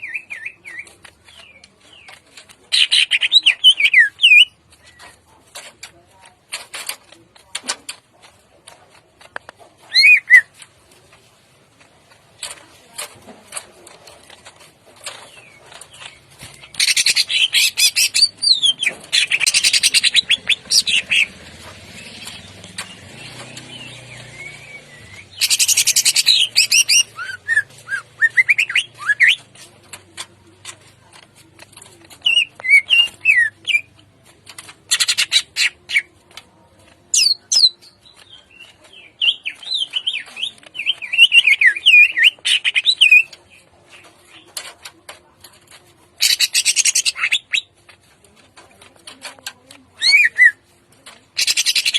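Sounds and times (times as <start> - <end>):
bird harsh chattering: 16.8 - 21.4, 25.1 - 29.4, 46.2 - 47.7, 51.4 - 51.9.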